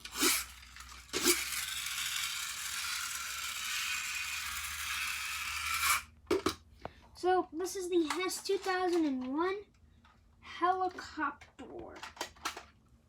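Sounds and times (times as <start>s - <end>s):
toy clicks: 0.0s - 6.1s
toy helicopter motor whirring: 0.0s - 6.1s.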